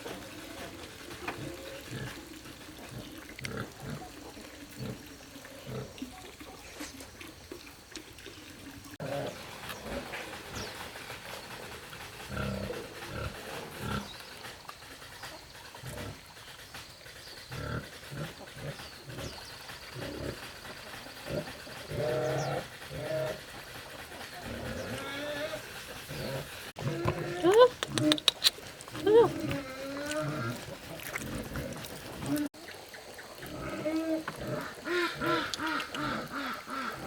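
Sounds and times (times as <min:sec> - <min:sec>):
animal low grunts: 0:11.8 - 0:14.3, 0:17.4 - 0:32.5.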